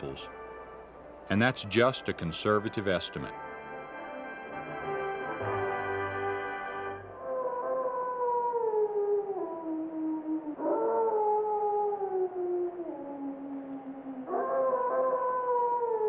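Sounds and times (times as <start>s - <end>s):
canid howling: 7.1s - 16.0s.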